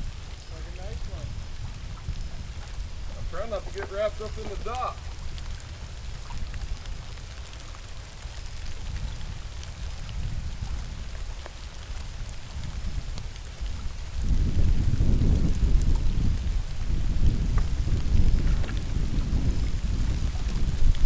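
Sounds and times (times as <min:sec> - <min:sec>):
rain patter: 0:00.0 - 0:21.0.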